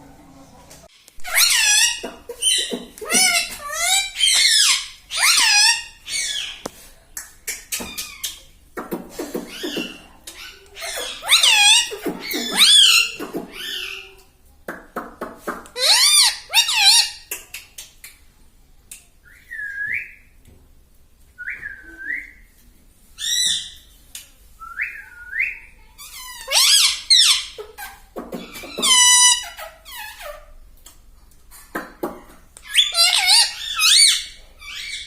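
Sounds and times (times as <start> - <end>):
parrot whistling and calling: 1.2 - 6.5, 9.4 - 14.1, 32.6 - 35.0.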